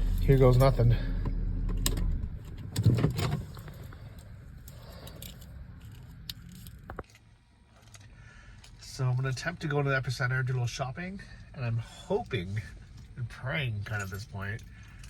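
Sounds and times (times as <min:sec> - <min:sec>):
car engine rumble: 0:00.0 - 0:15.0
keys jangling: 0:02.5 - 0:07.2.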